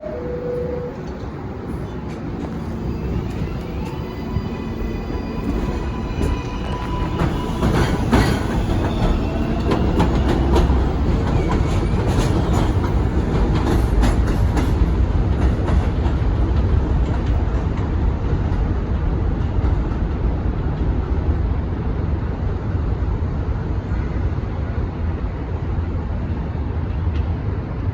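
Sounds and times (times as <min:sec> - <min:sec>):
high wheel squeals: 0:00.0 - 0:12.8
subway train rumbling: 0:00.0 - 0:27.9.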